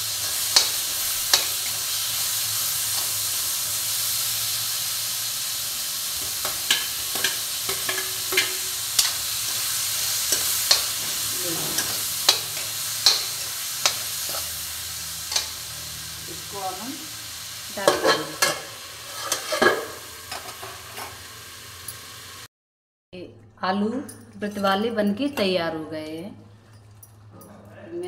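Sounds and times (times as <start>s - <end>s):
potatoes sizzling in hot fat: 0.0s - 22.5s
spoon clinking and scraping pan: 0.1s - 2.0s, 6.2s - 15.7s, 17.8s - 22.2s.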